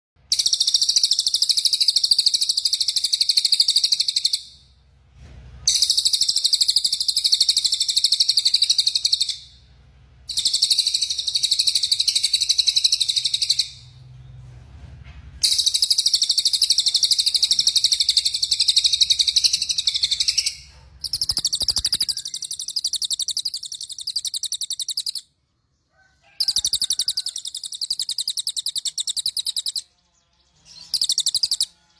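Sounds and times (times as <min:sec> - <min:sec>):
bird singing rapid trills: 0:00.3 - 0:04.6, 0:05.7 - 0:09.6, 0:10.3 - 0:13.9, 0:15.4 - 0:25.3, 0:26.4 - 0:31.9.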